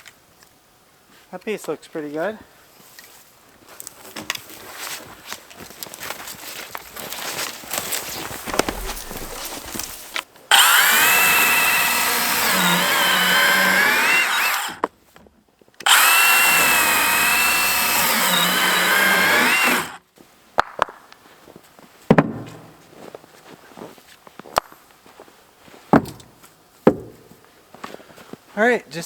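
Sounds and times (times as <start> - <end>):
power saw cutting wood: 8.5 - 14.8, 15.8 - 20.0.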